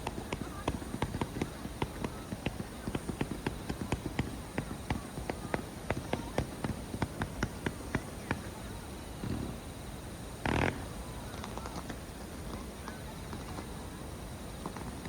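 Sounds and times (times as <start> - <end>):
fireworks crackling: 0.0 - 9.7.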